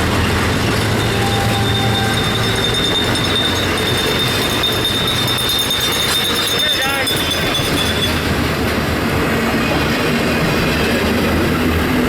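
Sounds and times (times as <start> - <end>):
train rumbling past: 0.0 - 12.0
high wheel squeal: 0.3 - 8.5.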